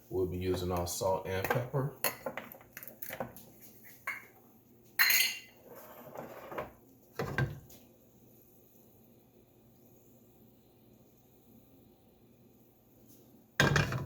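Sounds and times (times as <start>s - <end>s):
kitchen utensils clinking: 5.0s - 7.4s.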